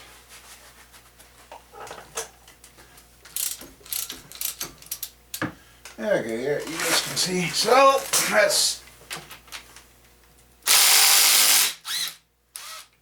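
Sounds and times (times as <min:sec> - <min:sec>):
faint handling noises: 0:00.2 - 0:09.9
ratchet wrench clicking: 0:03.4 - 0:05.1.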